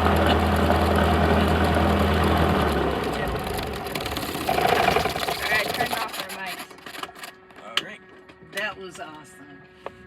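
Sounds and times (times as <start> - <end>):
piston aircraft engine idling: 0.0 - 6.8
propeller running down rattle: 0.0 - 7.4.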